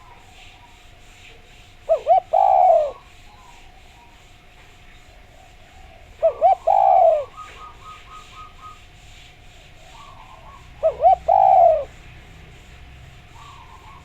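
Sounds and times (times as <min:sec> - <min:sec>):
dove cooing: 0:00.0 - 0:04.4, 0:05.0 - 0:14.0.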